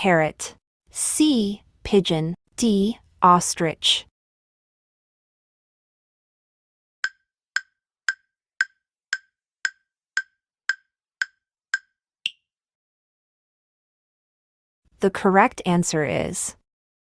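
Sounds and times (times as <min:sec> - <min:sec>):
wood-block countdown ticks: 0:07.0 - 0:12.5.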